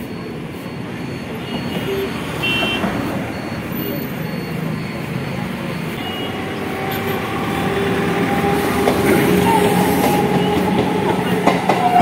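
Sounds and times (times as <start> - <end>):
train wheels rumbling on rail: 0.0 - 12.0
train hum: 4.6 - 12.0.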